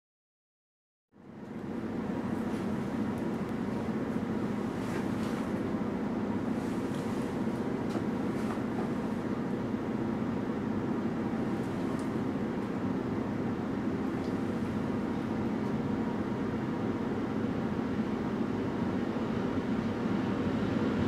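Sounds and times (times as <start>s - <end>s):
standing train hum and rumble: 1.1s - 21.0s.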